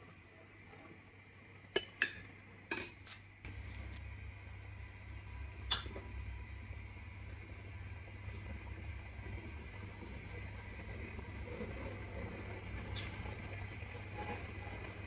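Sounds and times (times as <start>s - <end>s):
steady low hum: 1.7s - 15.0s
dishes and cutlery clinking: 1.8s - 3.2s, 5.7s - 6.0s.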